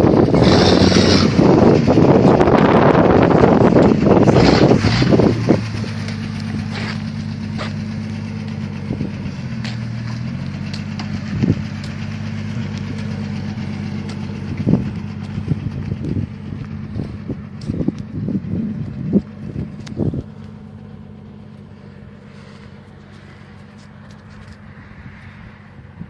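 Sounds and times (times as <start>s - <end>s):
wind buffeting on microphone: 0.0s - 7.9s, 11.2s - 13.0s, 13.6s - 20.4s
engine running at low revs: 0.0s - 26.0s.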